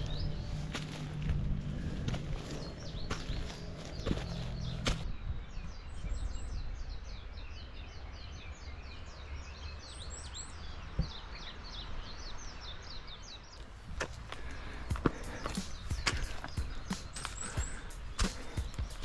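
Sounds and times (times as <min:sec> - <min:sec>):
low rumble: 0:00.0 - 0:05.5
songbird chirping: 0:00.0 - 0:19.0.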